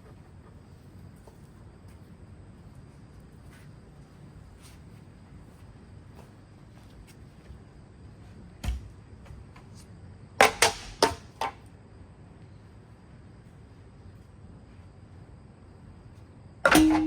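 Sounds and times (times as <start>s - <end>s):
brief metallic ring: 16.7s - 17.0s.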